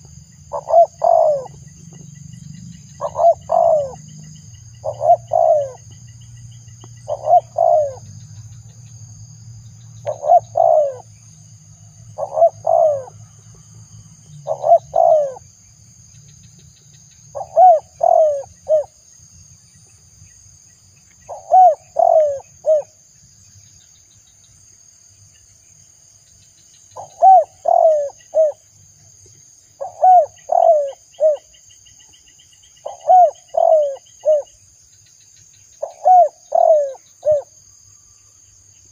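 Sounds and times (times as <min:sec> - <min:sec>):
dove cooing: 0:00.0 - 0:01.7, 0:03.0 - 0:04.0, 0:04.8 - 0:06.0, 0:07.0 - 0:08.1, 0:10.0 - 0:11.1, 0:12.2 - 0:13.2, 0:14.4 - 0:15.4, 0:17.3 - 0:19.0, 0:21.3 - 0:23.0, 0:27.0 - 0:28.6, 0:29.8 - 0:31.5, 0:32.8 - 0:34.6, 0:35.8 - 0:37.5.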